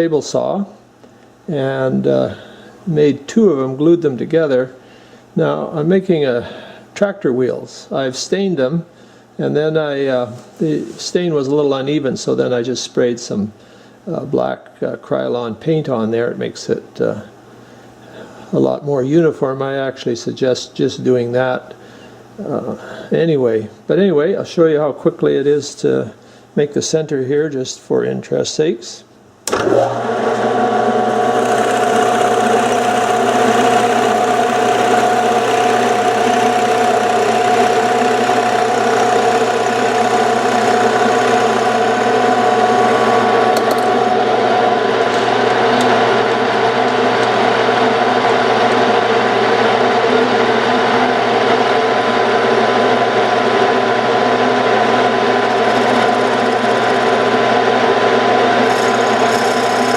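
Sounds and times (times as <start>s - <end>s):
metal lathe motor humming: 29.5s - 59.9s.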